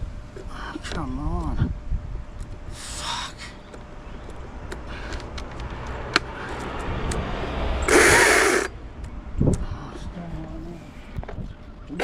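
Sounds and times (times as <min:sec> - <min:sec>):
low steady rumble: 0:00.0 - 0:11.9
loud rushing burst: 0:07.8 - 0:08.7.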